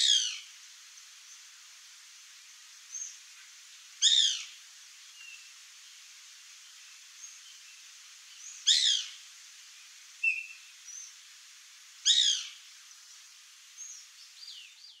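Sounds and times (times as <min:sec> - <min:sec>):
harsh downward-sliding bird calls: 0:08.5 - 0:09.2, 0:12.0 - 0:12.6
faint bird whistles and chirps: 0:10.2 - 0:11.1.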